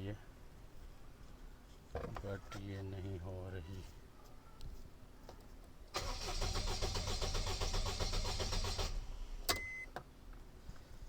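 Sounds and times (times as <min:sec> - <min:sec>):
starter cranking engine: 0:06.0 - 0:09.2.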